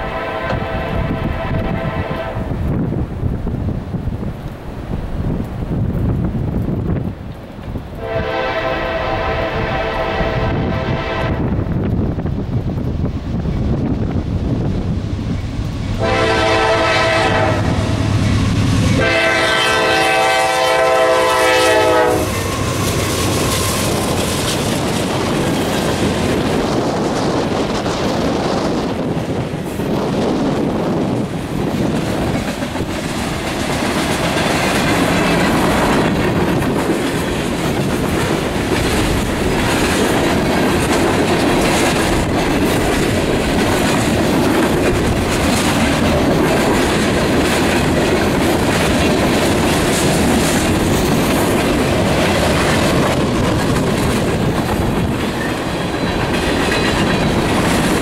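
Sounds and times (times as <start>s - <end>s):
locomotive air horn blasts: 0.0s - 2.5s, 8.0s - 11.5s, 16.0s - 22.7s
train wheels clattering over rail joints: 22.3s - 58.0s.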